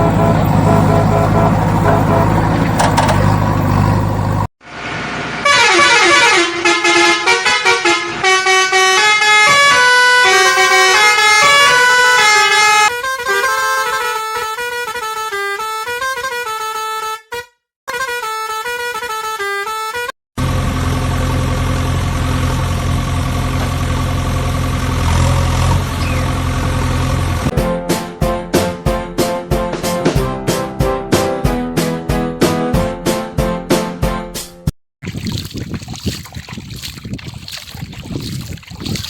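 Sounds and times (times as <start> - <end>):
melodic horn-like tune: 0.0 - 2.5, 5.5 - 20.1
cartoon vehicle horn tones: 0.0 - 2.8, 5.4 - 20.1.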